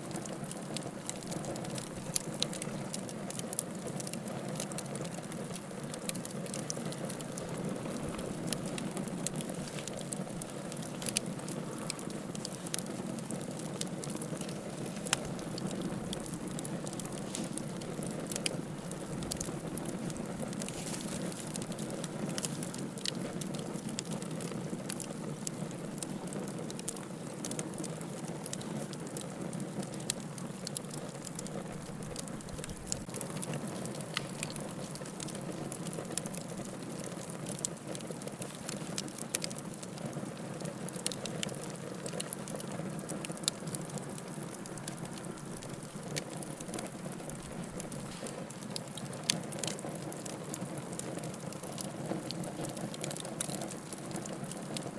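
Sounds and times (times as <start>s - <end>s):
logs crackling and popping: 0.0s - 54.9s
flames hissing: 6.5s - 24.0s.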